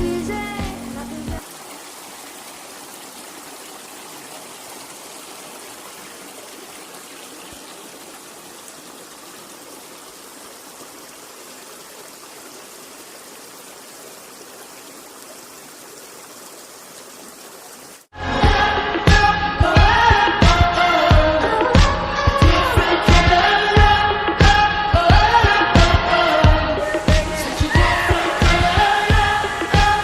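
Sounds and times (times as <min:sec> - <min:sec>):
water rushing: 0:00.0 - 0:19.2, 0:25.3 - 0:30.0.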